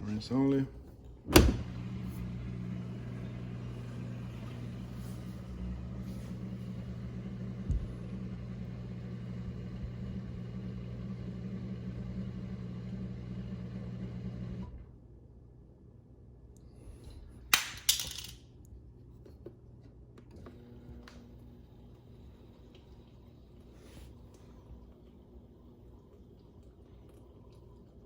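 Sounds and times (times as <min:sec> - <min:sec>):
dishwasher motor hum: 0:00.0 - 0:15.0, 0:20.0 - 0:28.0.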